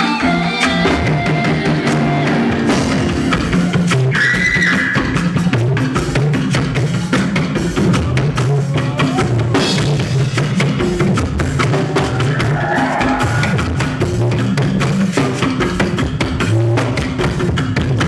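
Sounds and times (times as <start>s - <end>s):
bass line: 0.0s - 5.8s
drum kit playing a busy beat: 0.0s - 18.0s.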